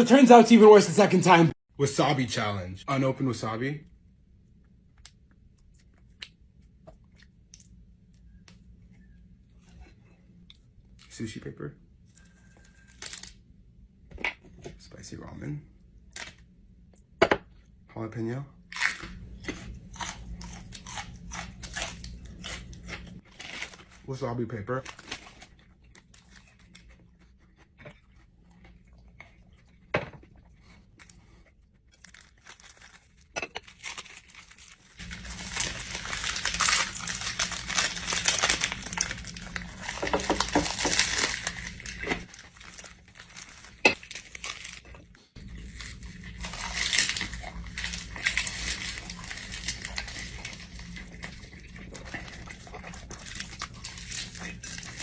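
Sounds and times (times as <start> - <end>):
wrapper crinkling and tearing: 12.2 - 13.4, 21.6 - 26.8, 31.9 - 44.8, 45.5 - 55.0.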